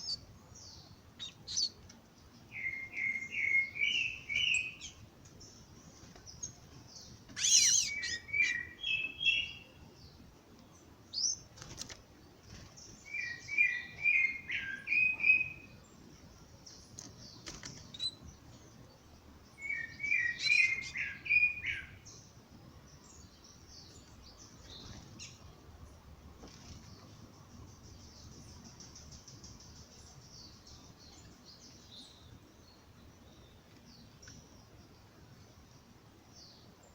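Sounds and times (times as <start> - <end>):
bird singing song phrase: 0.0 - 11.4, 12.9 - 25.5, 26.9 - 36.9
high-pitched bird twittering: 2.6 - 5.0, 7.4 - 9.6, 19.6 - 21.9.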